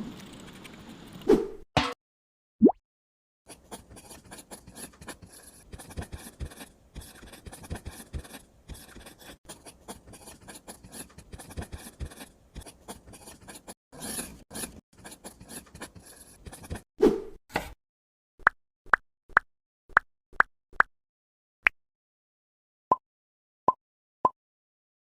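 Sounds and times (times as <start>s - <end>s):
scratching and rasping: 3.5s - 16.9s.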